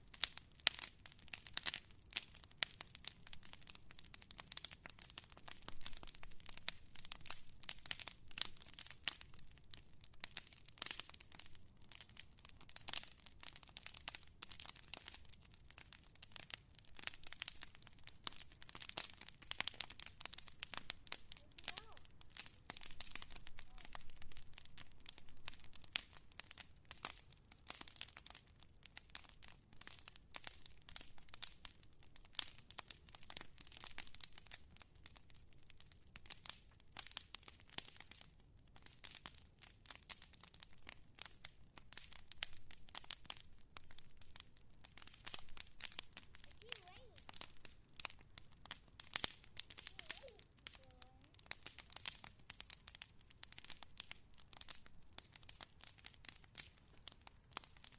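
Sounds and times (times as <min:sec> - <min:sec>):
wood fire crackling: 0:00.0 - 0:57.9.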